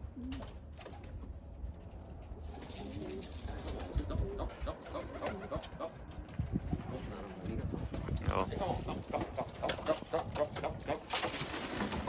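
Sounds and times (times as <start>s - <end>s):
pigeons cooing: 2.3s - 6.2s, 8.6s - 12.0s.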